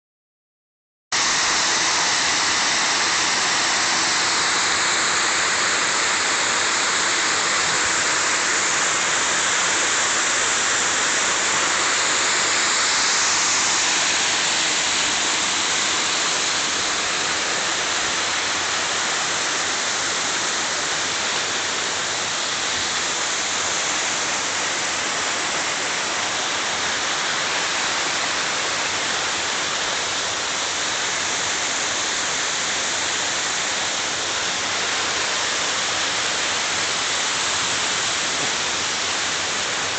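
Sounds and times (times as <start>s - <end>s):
waterfall pouring: 1.2s - 29.3s.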